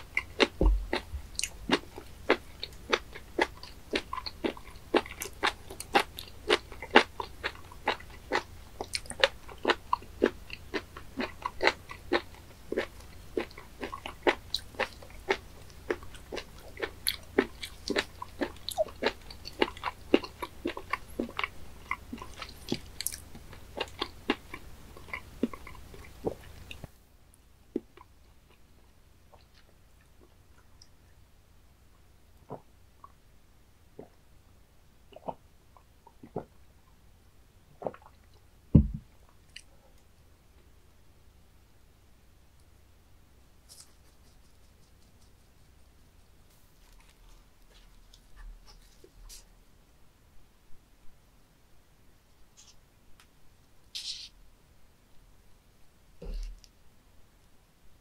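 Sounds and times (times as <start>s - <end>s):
wet crunchy chewing: 0.0s - 26.9s.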